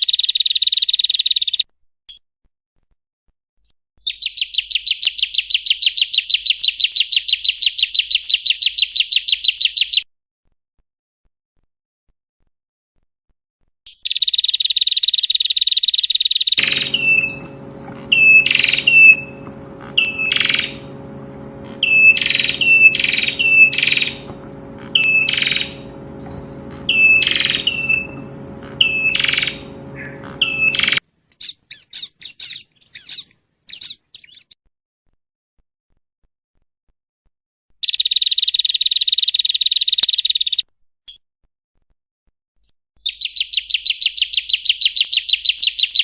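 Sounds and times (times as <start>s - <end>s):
bird buzzy trill: 16.6s - 31.0s
sharp high bird notes: 16.6s - 31.0s
steady electrical hum: 16.6s - 31.0s.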